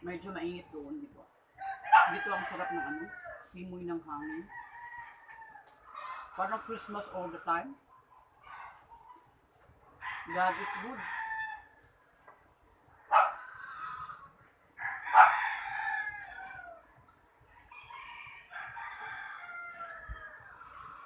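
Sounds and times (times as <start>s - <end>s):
rooster crowing: 1.6s - 3.4s, 4.5s - 6.6s, 10.0s - 11.8s, 13.1s - 16.9s, 17.6s - 21.0s.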